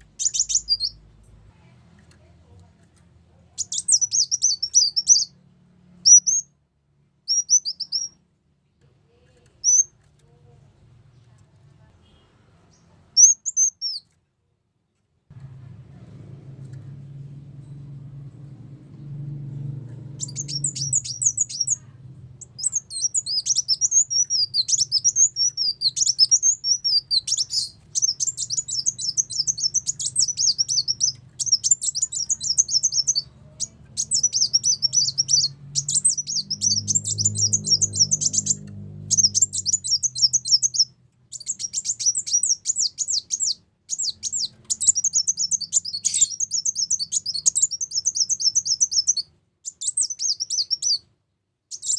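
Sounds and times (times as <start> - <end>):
high twittering bird chirps: 0.0 - 1.0, 3.5 - 5.4, 6.0 - 6.6, 7.2 - 8.2, 9.6 - 10.0, 12.1 - 14.1, 19.0 - 51.1
faint low hum: 0.0 - 51.0.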